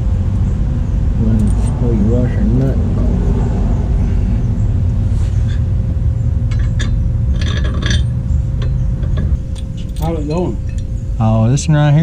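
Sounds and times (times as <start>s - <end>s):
steady low rumble: 0.0s - 12.0s
metal hardware clinking and scraping: 1.3s - 1.8s, 5.3s - 5.7s, 6.5s - 11.2s.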